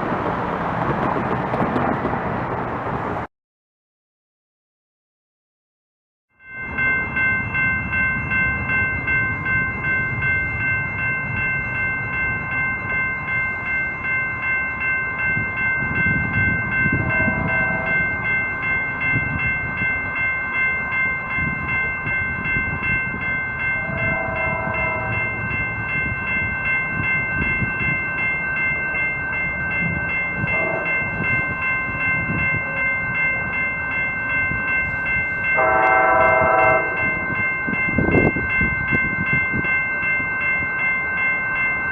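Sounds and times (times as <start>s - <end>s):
train rumbling: 0.0s - 3.3s, 6.7s - 41.9s
railroad crossing bell ringing: 6.3s - 41.9s
train horn: 17.0s - 18.2s, 23.8s - 25.4s, 30.4s - 31.2s, 35.6s - 37.1s.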